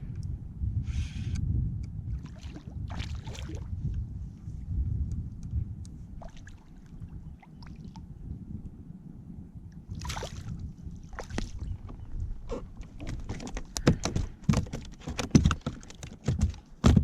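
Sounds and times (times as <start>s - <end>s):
water sloshing against hull: 2.1s - 4.6s, 6.0s - 8.2s, 9.8s - 17.0s
fish slapping and knocking: 11.2s - 17.0s.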